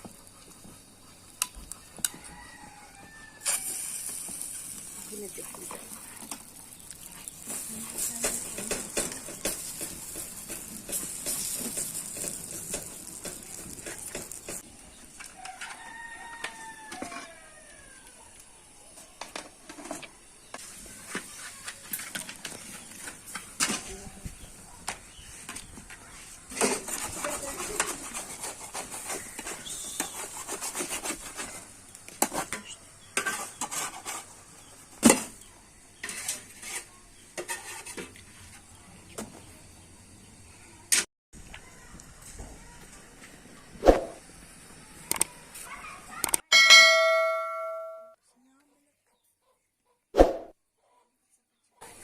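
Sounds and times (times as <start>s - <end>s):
rooster crowing: 2.1s - 3.8s, 15.4s - 18.1s
scraping on a hard surface: 25.4s - 35.3s, 36.0s - 38.7s.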